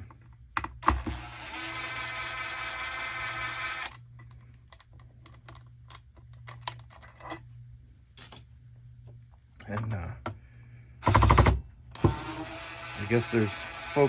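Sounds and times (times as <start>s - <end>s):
cordless screw gun running: 0.8s - 4.0s, 11.0s - 14.0s.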